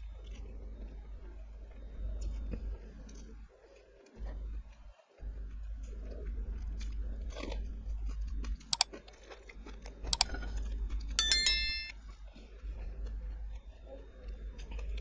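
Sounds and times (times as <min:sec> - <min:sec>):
ringing clink: 0:11.2 - 0:11.9.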